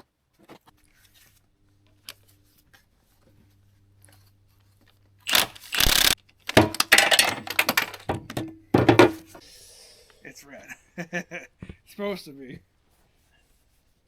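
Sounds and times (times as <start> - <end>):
faint wrench clicks: 5.3 - 6.2
metal rattling and scraping: 5.3 - 9.4.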